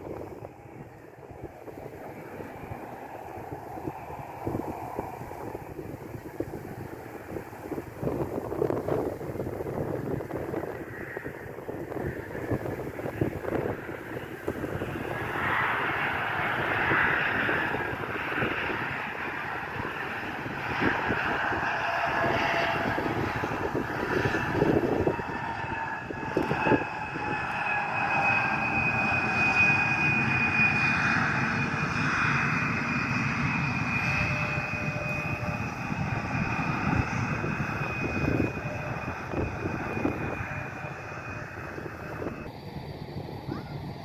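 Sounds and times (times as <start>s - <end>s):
airplane engine passing: 0.0s - 44.0s.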